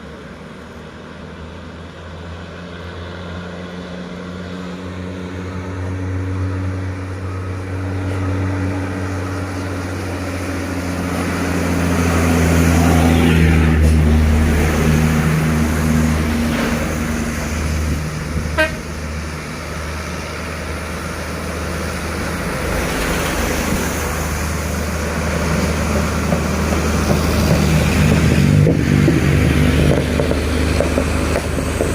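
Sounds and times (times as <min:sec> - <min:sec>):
diesel truck engines droning: 0:00.0 - 0:31.9
truck horn toot: 0:18.5 - 0:19.0.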